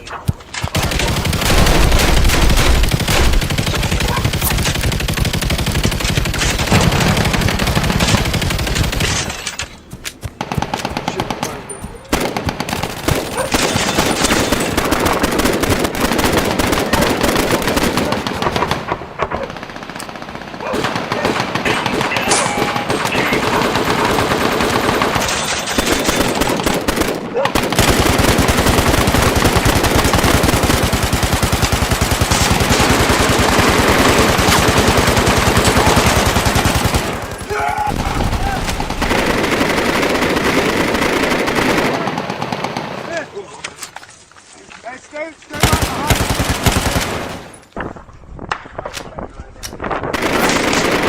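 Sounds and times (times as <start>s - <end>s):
automatic gunfire bursts: 0.6s - 9.3s, 10.4s - 18.8s, 19.5s - 43.0s, 45.6s - 47.5s, 50.1s - 51.0s.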